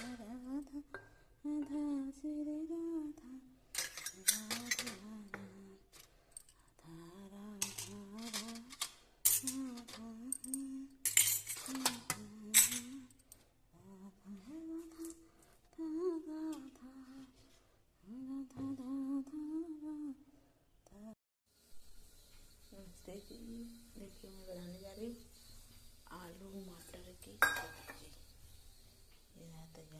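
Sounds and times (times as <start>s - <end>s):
woman humming: 0.0s - 3.5s, 4.3s - 5.9s, 6.8s - 8.8s, 9.4s - 11.0s, 11.7s - 13.2s, 13.8s - 15.2s, 15.8s - 17.4s, 18.0s - 20.2s
kitchen utensils clinking: 3.8s - 5.0s, 7.6s - 13.0s, 26.2s - 28.2s.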